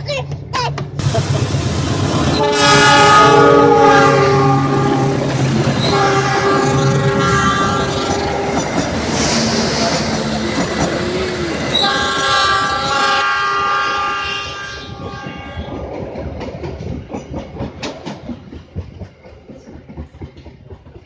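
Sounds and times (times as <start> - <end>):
train wheels clattering: 0.9 - 21.0
locomotive horn: 2.2 - 8.8, 11.7 - 15.7.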